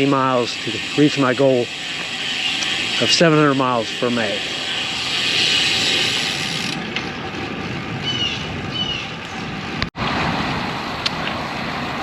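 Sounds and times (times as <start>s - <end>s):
bicycle road noise: 0.0s - 12.0s
wind noise: 3.9s - 12.0s.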